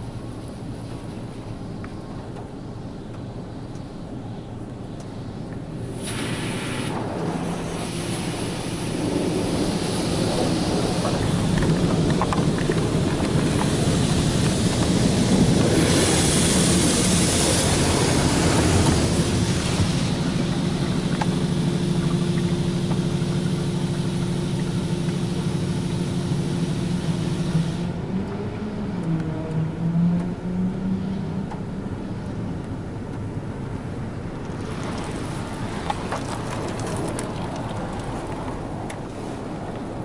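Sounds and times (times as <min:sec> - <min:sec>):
steady machine hum: 0:00.0 - 0:29.0
water spray rushing against car: 0:05.1 - 0:28.0, 0:34.4 - 0:40.0.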